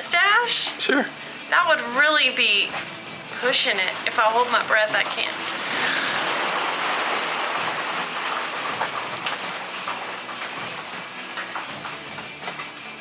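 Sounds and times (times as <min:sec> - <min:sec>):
rain-like hiss: 0:02.9 - 0:11.8.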